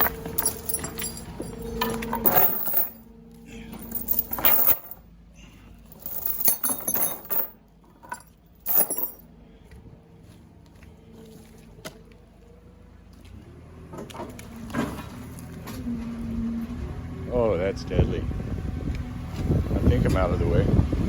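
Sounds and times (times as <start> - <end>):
metal chain clinking: 0.0 - 3.0, 3.7 - 5.0, 5.8 - 9.2.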